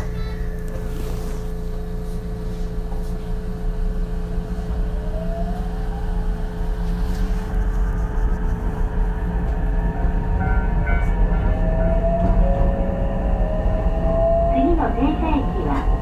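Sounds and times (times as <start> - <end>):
train running rumble: 0.0 - 16.0
train inverter whine rising: 3.6 - 16.0.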